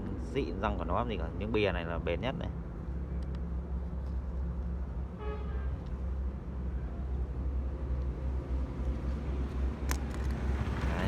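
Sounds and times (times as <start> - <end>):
traffic rumble: 0.0 - 11.0
vehicle horn toot: 5.2 - 5.8.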